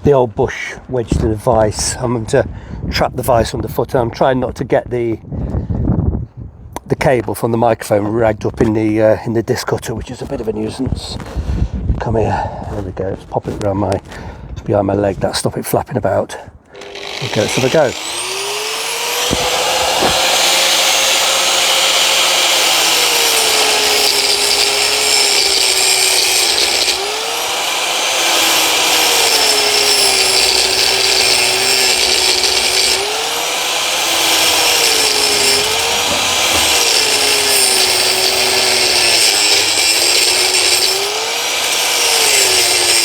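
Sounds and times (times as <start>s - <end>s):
angle grinder cutting: 16.7s - 43.0s.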